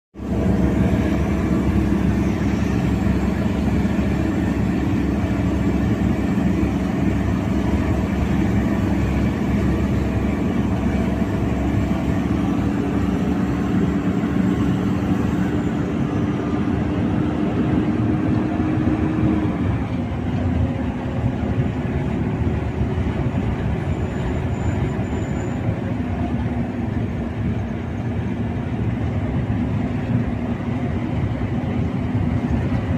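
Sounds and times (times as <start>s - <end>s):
truck diesel engine droning: 0.2s - 32.9s.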